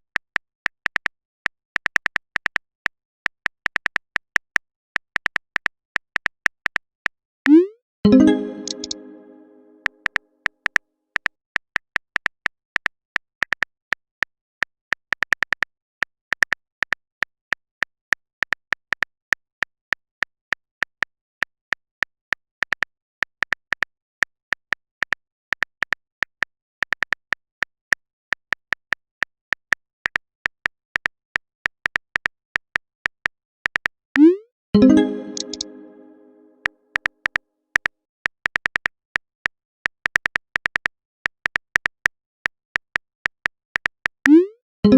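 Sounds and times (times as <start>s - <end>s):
phone keyboard typing clicks: 8.1s - 9.5s, 34.2s - 36.5s.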